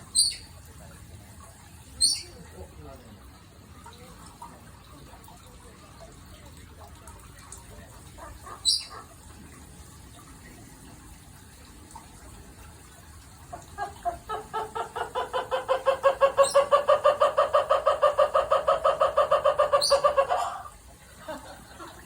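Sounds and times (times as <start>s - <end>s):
bird calling in rapid notes: 0.1s - 0.5s, 2.0s - 2.4s, 8.2s - 9.1s, 13.8s - 20.7s.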